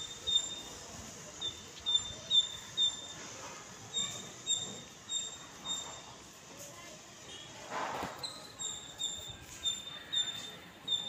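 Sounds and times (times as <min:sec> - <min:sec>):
small bird calling: 0:00.0 - 0:00.7, 0:01.4 - 0:03.2, 0:08.6 - 0:11.0.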